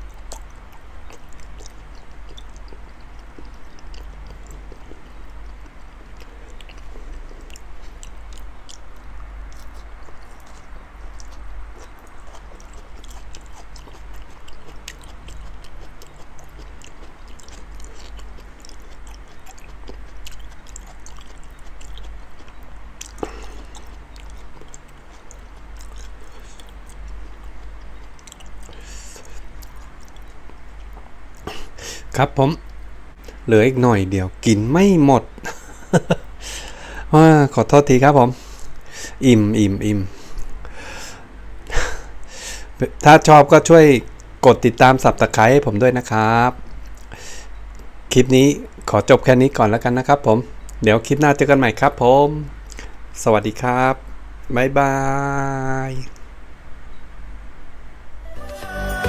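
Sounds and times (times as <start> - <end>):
mouth chewing wet clicks: 0.0 - 33.5, 35.3 - 37.8, 43.4 - 45.4, 46.0 - 49.6, 50.5 - 51.4, 52.5 - 53.0
steady low hum: 0.0 - 59.0.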